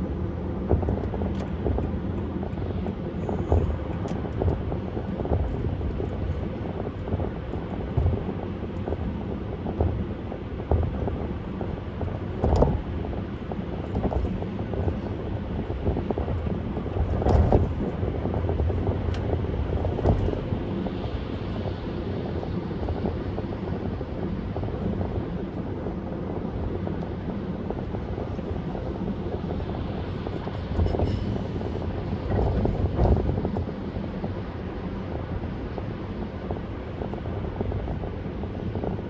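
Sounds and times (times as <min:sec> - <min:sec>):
road and wind noise: 0:00.0 - 0:39.0.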